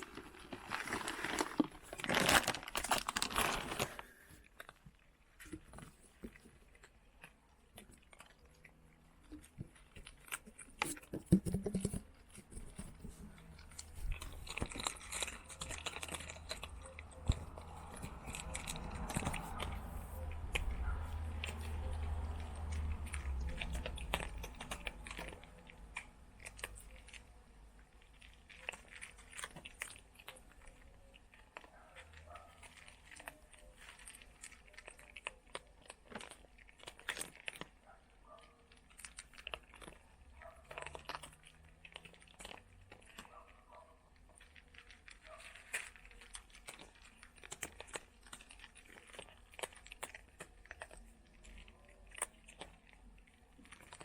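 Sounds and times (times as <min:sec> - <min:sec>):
bag crinkling: 0:00.0 - 0:04.8, 0:09.3 - 0:27.2
cats crunching food: 0:00.0 - 0:54.0.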